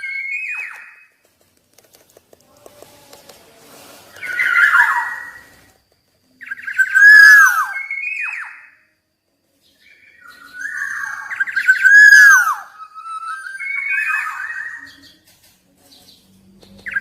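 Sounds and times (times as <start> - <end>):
oriole singing fluting phrases: 2.5 - 5.7, 6.3 - 8.8, 9.8 - 15.2.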